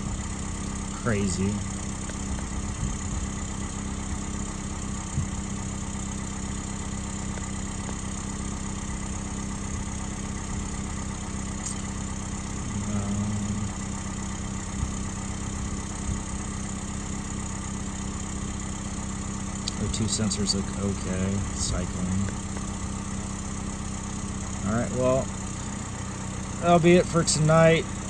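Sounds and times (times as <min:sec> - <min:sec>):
short engine knock: 0:00.0 - 0:12.8
car engine idling: 0:00.0 - 0:28.0.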